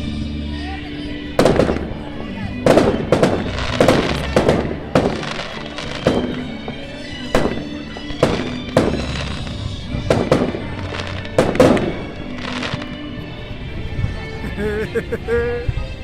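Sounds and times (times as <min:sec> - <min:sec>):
fireworks bangs echoing: 0:01.3 - 0:14.2.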